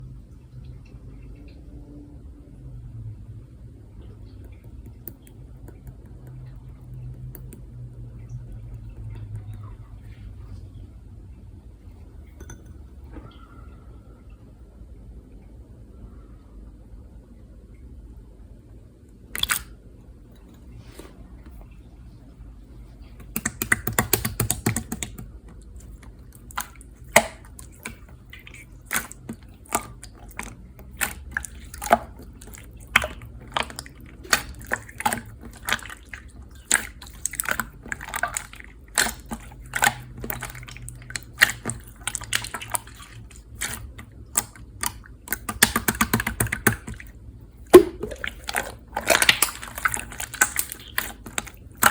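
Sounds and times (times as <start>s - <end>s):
slime squeezed with wet clicks: 19.4s - 19.7s, 23.2s - 47.1s, 47.7s - 51.9s
slime crackling: 25.8s - 47.1s, 47.7s - 51.9s.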